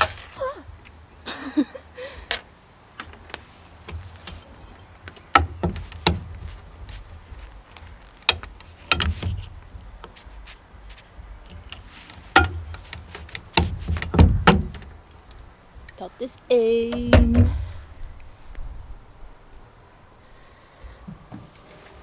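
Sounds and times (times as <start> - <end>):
metal clanks: 11.5 - 15.4
hand tools clicking on metal: 11.5 - 16.0.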